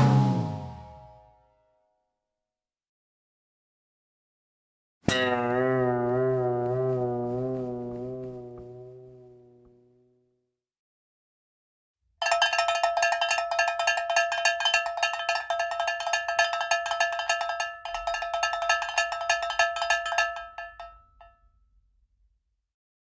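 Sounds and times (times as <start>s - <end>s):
metal bell rung rapidly: 12.2s - 21.4s.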